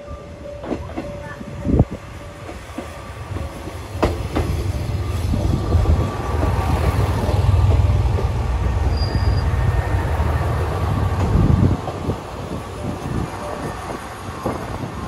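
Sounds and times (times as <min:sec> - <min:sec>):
diesel railcar engine rumble: 0:00.0 - 0:15.0
high squeal: 0:08.8 - 0:10.6.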